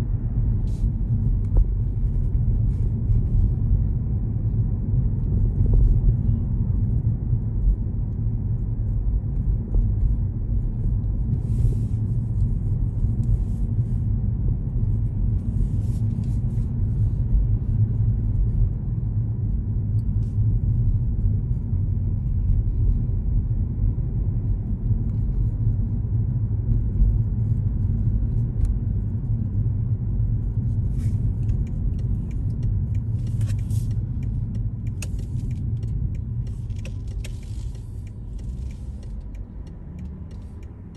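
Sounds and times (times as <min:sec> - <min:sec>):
car road and engine rumble: 0:00.0 - 0:40.9
faint clicks and rattles: 0:31.2 - 0:40.9.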